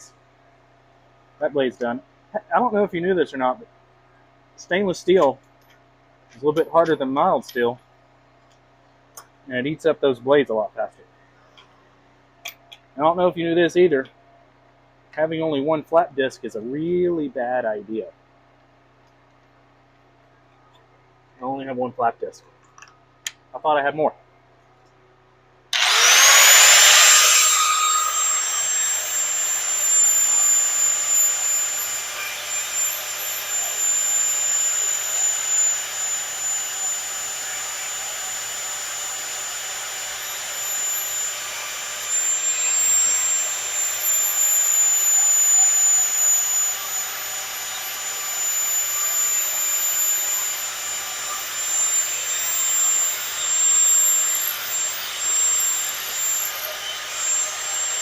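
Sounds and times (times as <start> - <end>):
angle grinder grinding steel: 25.8 - 58.0.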